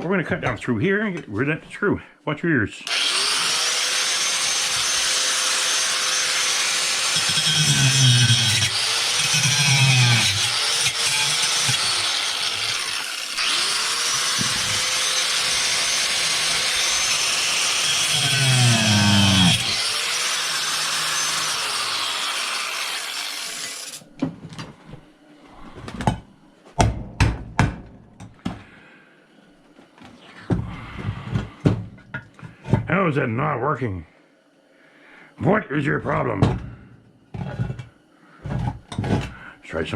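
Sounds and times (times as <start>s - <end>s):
power cutting tool cutting metal: 2.9s - 24.0s.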